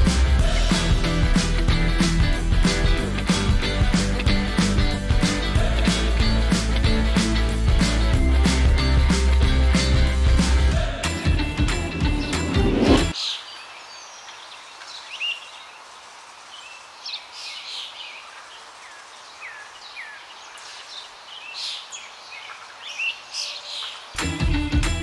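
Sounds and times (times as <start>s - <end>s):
music: 0.0s - 13.2s, 24.2s - 25.0s
outdoor background: 0.0s - 25.0s
songbirds chirping: 13.1s - 25.0s.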